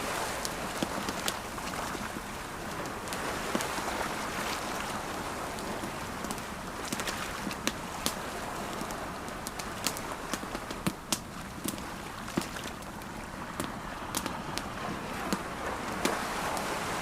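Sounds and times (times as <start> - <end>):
campfire crackling: 0.0 - 17.0
ocean waves: 0.0 - 17.0
sharp pops of fire: 6.2 - 8.2.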